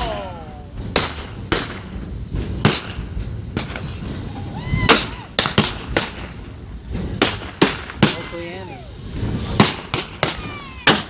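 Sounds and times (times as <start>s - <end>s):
moving train rumble: 0.0s - 11.0s
train wheel squeals: 1.3s - 4.9s, 6.4s - 11.0s.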